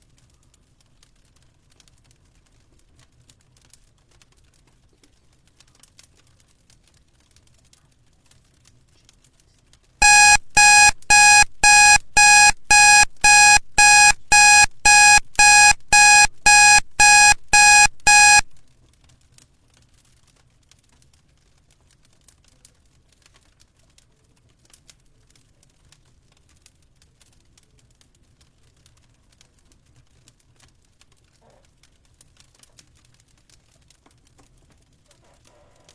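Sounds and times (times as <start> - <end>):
timer alarm beeping: 10.0 - 18.6.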